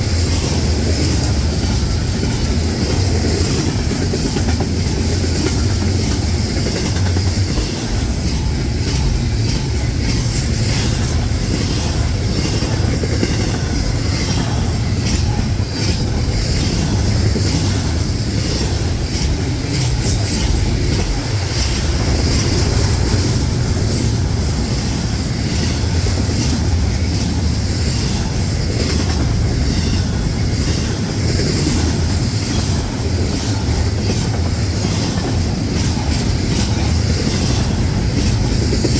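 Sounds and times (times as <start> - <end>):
freight train cars rumbling: 0.0 - 38.9
wheels clicking over rail joints: 0.0 - 38.9.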